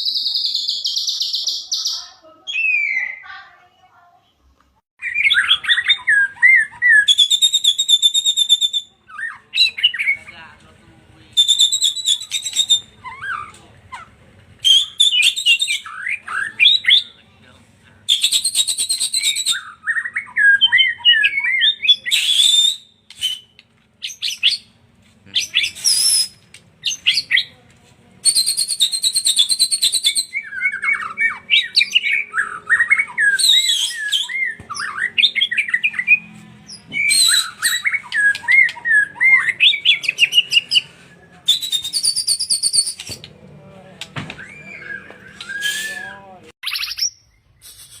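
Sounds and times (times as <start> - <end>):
bird singing whistled phrases: 0.0 - 3.3, 5.0 - 10.2, 11.4 - 17.2, 18.1 - 24.8, 25.4 - 27.6, 28.2 - 43.3, 44.3 - 48.0
harsh buzzy rattling calls: 11.3 - 17.1, 21.9 - 27.6, 28.2 - 46.4.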